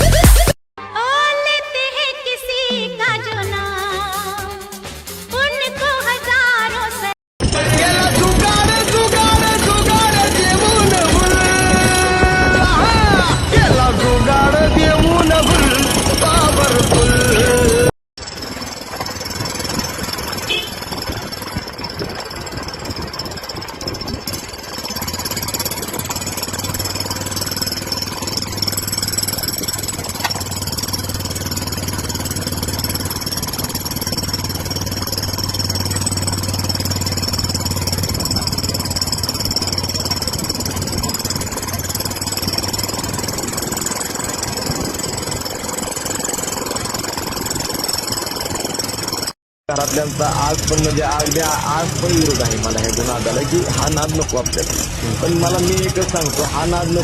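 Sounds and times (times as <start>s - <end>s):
motorcycle engine exhaust note: 7.6s - 17.9s, 18.6s - 48.0s.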